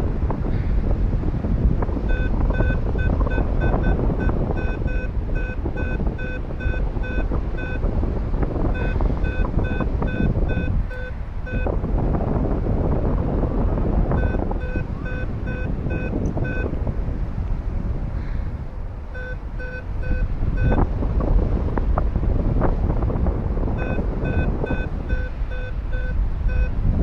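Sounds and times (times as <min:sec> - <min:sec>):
wind rushing over microphone: 0:00.0 - 0:27.0
variometer beeping: 0:01.6 - 0:12.1, 0:13.2 - 0:17.4, 0:19.1 - 0:21.6, 0:23.0 - 0:27.0.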